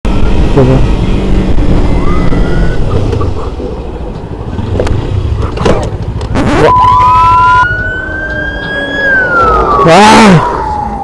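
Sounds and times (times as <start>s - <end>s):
motorcycle running: 0.1s - 10.8s
siren wailing: 6.4s - 11.0s.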